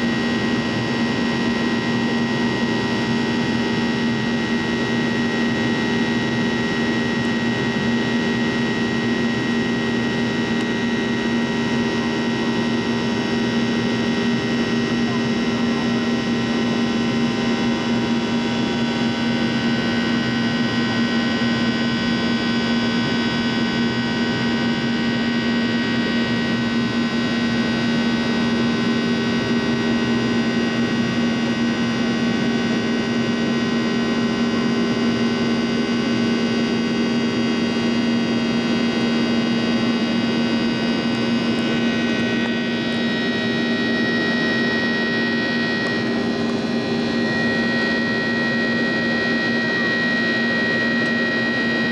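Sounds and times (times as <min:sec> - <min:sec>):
jet engine drone in cabin: 0:00.0 - 0:51.9
whining engine tones: 0:38.2 - 0:51.9.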